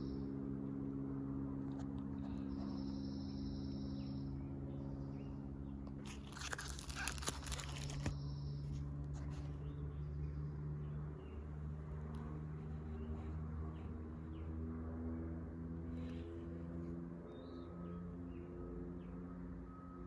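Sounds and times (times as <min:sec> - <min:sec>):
steady low hum: 0:00.0 - 0:20.0
crinkling crunching noise: 0:05.9 - 0:08.2.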